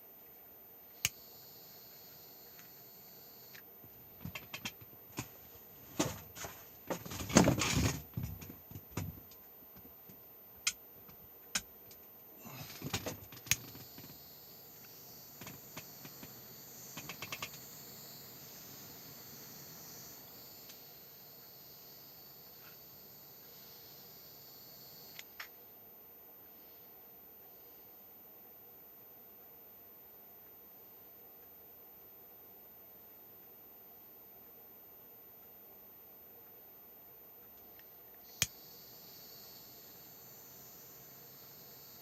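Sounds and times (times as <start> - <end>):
faint high hiss: 0.0 - 42.0.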